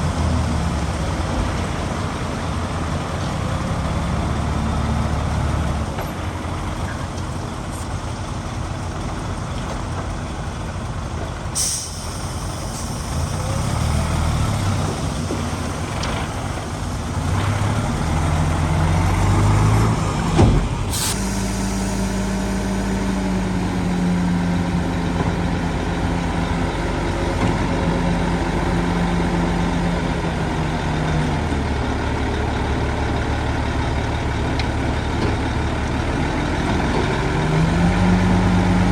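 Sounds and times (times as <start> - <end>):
diesel machinery engine running: 0.0 - 38.9
sharp hisses: 11.6 - 15.9, 20.9 - 23.4.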